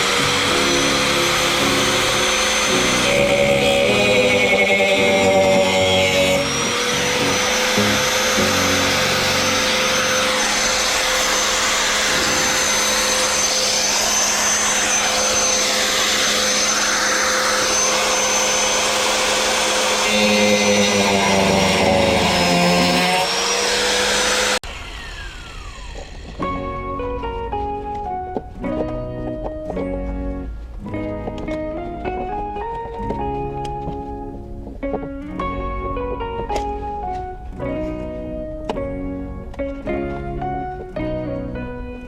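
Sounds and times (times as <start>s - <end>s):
small electric motor whining: 0.0s - 28.3s.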